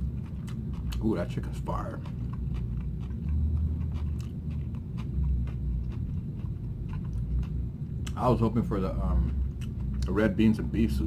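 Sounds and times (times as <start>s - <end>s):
wet chewing and mouth smacks: 0.0s - 1.1s, 1.8s - 8.2s, 9.1s - 10.1s
steady low rumble: 0.0s - 11.0s.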